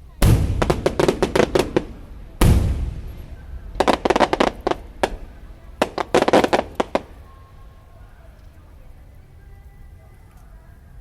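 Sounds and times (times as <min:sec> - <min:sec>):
firework shell booming: 0:00.0 - 0:07.3
crackling firework pops: 0:00.2 - 0:07.2.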